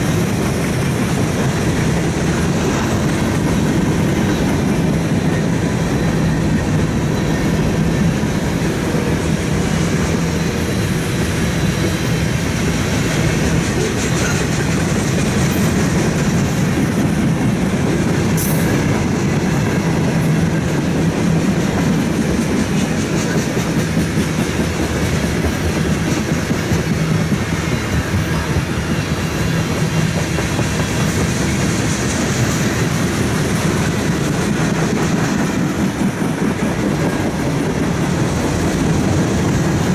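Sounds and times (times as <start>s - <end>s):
train wheels rumbling on rail: 0.0s - 39.9s
wheels clickety-clack over rail joints: 0.0s - 39.9s.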